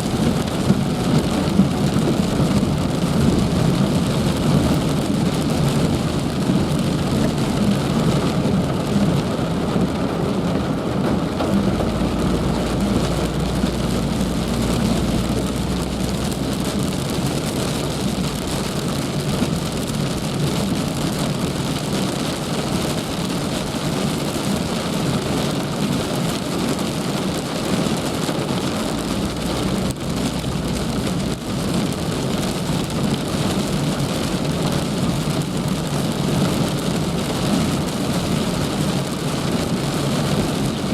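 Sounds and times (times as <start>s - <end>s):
low rumble: 0.0s - 21.6s
heavy rain falling: 0.0s - 40.9s.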